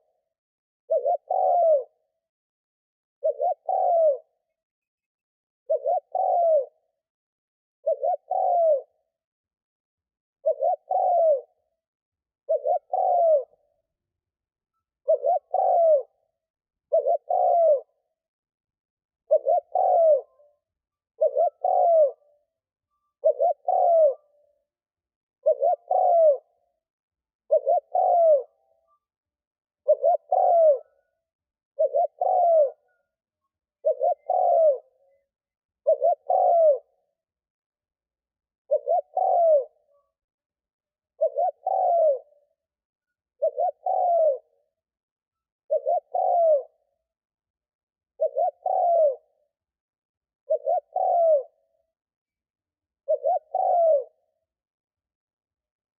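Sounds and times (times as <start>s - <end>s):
dove cooing: 0.9s - 2.2s, 3.2s - 4.4s, 5.7s - 7.0s, 7.8s - 9.1s, 10.4s - 11.7s, 12.4s - 13.8s, 15.0s - 18.1s, 19.2s - 24.5s, 25.4s - 26.5s, 27.5s - 29.0s, 29.8s - 31.1s, 31.8s - 33.1s, 33.8s - 37.2s, 38.7s - 40.1s, 41.1s - 42.5s, 43.4s - 44.6s, 45.7s - 46.9s, 48.2s - 49.4s, 50.4s - 51.6s, 53.0s - 54.4s.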